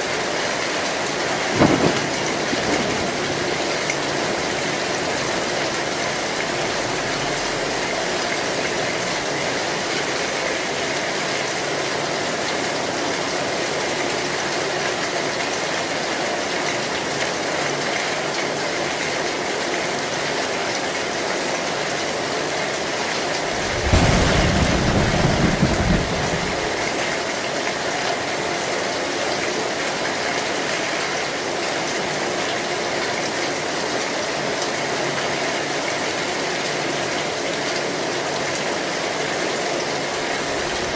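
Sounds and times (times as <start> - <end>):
heavy rain on a tin roof: 0.0 - 40.9
thunder clap: 1.3 - 9.5, 23.3 - 27.3.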